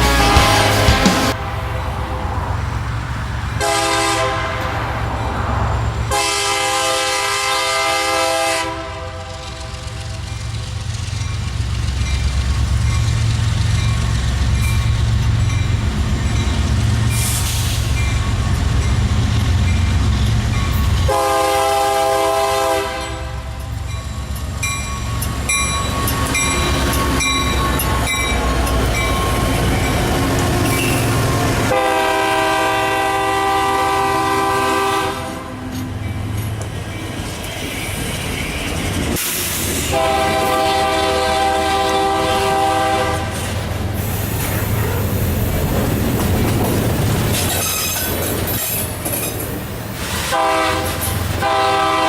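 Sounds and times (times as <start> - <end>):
train horn blasts: 0.0 - 2.7, 3.6 - 10.3, 21.0 - 23.6, 30.6 - 35.8, 39.8 - 43.5, 50.2 - 52.0
deep diesel engine rumble: 0.0 - 7.0
wheels clacking over rail joints: 8.2 - 21.2, 23.5 - 32.8, 35.2 - 52.0.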